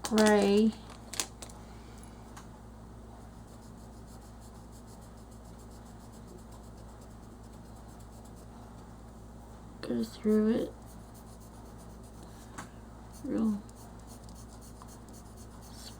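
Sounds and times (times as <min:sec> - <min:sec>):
steady low hum: 0:00.0 - 0:15.9
crayon rubbing on paper: 0:03.4 - 0:08.5, 0:09.9 - 0:12.2, 0:13.1 - 0:15.9.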